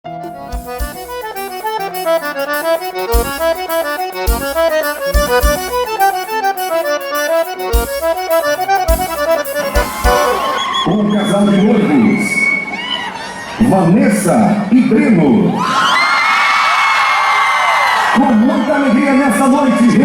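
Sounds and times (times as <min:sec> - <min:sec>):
deep drum beats: 0:00.0 - 0:10.6
accordion playing a quick run: 0:00.0 - 0:10.9.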